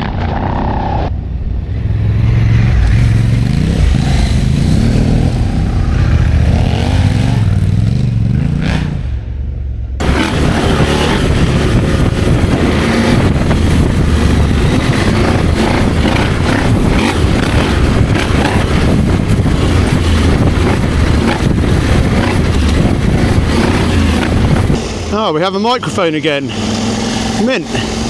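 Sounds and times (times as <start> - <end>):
motorcycle engine running: 0.0 - 28.0
wind noise on microphone: 10.0 - 25.2.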